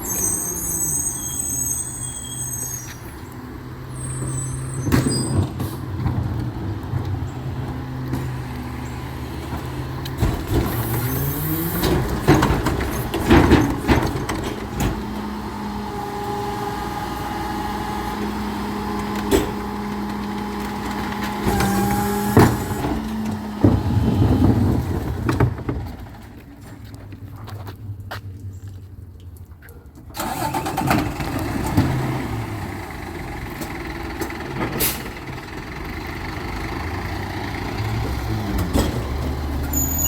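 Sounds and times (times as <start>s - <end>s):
truck diesel engine revving: 0.0s - 25.6s, 30.2s - 40.0s
hydraulics working: 0.0s - 27.3s.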